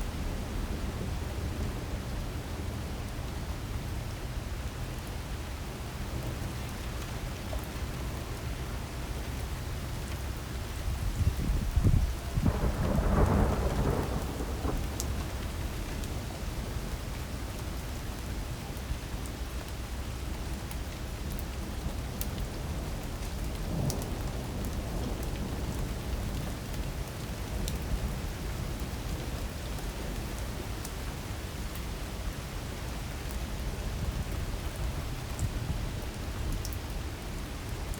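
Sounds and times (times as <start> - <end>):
heavy rain pouring: 0.0 - 37.9
thunder rumbling: 11.4 - 17.0.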